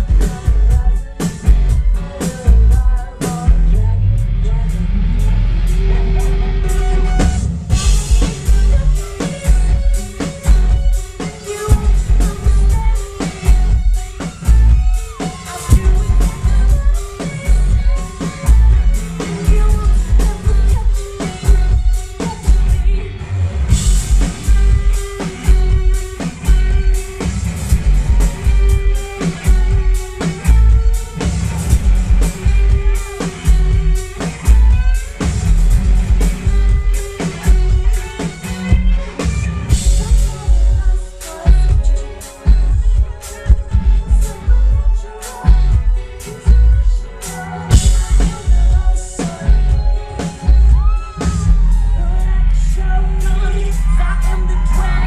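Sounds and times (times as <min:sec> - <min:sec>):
live rock band playing: 0:00.0 - 0:55.0
person singing: 0:00.0 - 0:55.0
heavy bass drum hits: 0:04.3 - 0:09.0, 0:15.7 - 0:18.9, 0:23.7 - 0:37.9, 0:47.7 - 0:49.9.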